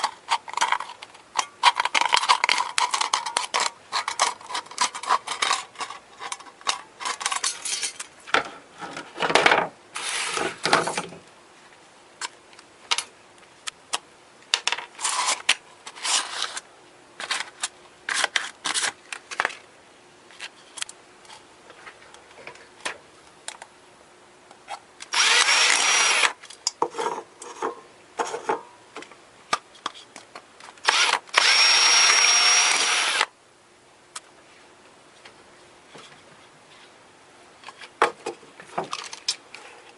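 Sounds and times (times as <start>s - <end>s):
small parts clicking and knocking: 0.0s - 8.4s, 37.6s - 39.6s
electric drill whining: 25.1s - 26.4s, 30.8s - 33.3s.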